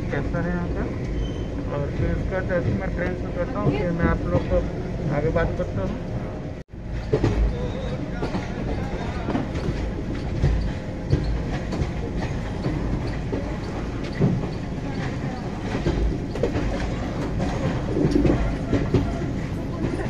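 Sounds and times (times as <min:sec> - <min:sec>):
train wheels rumbling: 0:00.0 - 0:20.0
wheels clickety-clack: 0:07.0 - 0:20.0.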